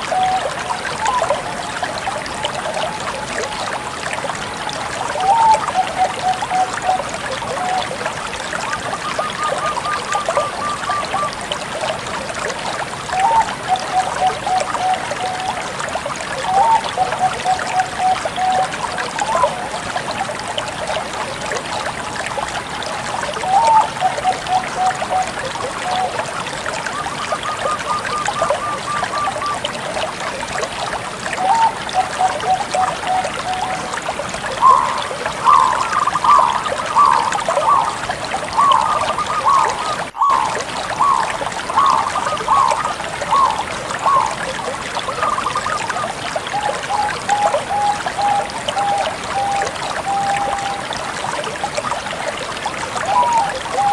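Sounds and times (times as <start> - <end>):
dove cooing: 34.6 - 44.3.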